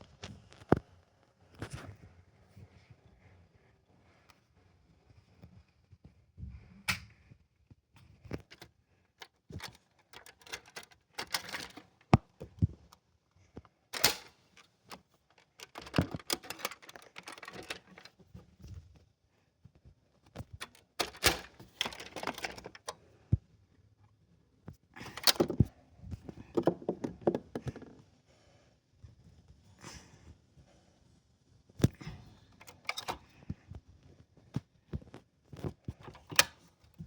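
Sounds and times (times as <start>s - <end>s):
small hard objects clicking and knocking: 15.3s - 18.1s, 26.5s - 28.0s.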